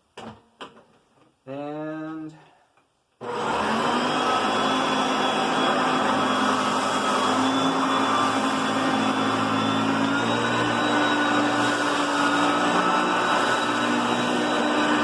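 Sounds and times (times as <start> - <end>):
upright vacuum cleaner running: 3.2 - 15.0.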